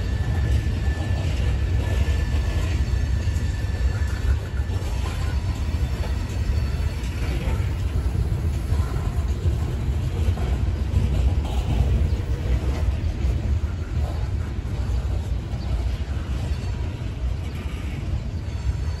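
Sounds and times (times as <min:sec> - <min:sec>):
steel wheels rumbling on rail: 0:00.0 - 0:19.0.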